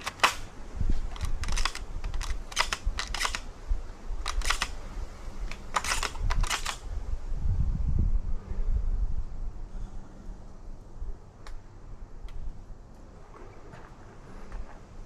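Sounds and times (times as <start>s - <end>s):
shotgun action clicks and clacks: 0.0s - 0.5s, 1.1s - 3.5s, 4.2s - 4.8s, 5.5s - 6.8s.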